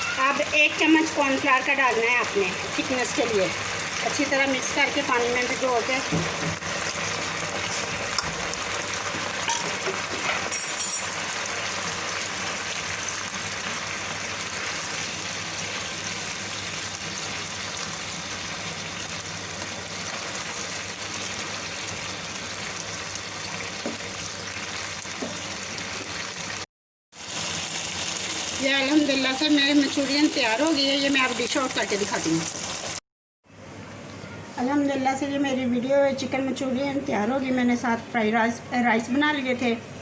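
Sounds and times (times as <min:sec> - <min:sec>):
sauce bubbling in a pan: 0:00.0 - 0:10.3, 0:11.1 - 0:33.0.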